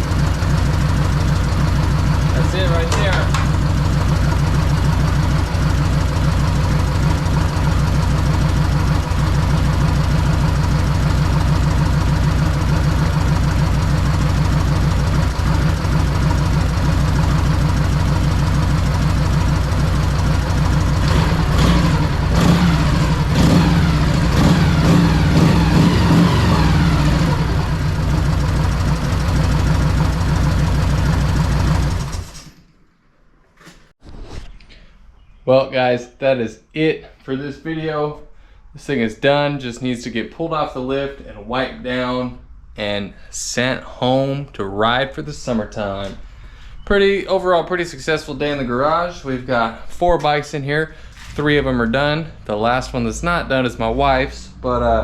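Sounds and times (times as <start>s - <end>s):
motorcycle engine idling and revving: 0.0s - 32.6s.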